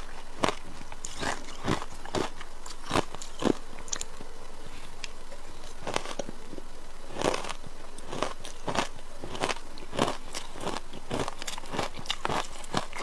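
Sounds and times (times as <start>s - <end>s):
ice crunching in mouth: 0.0s - 4.1s, 7.1s - 13.0s.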